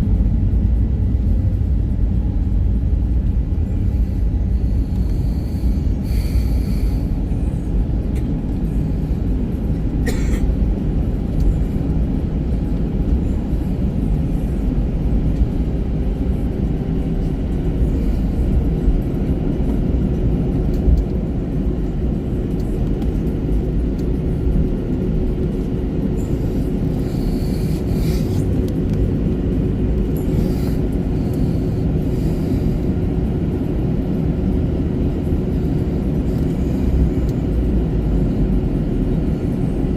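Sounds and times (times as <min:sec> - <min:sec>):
aircraft engines low rumble: 0:00.0 - 0:39.9
steady hum: 0:00.0 - 0:39.9.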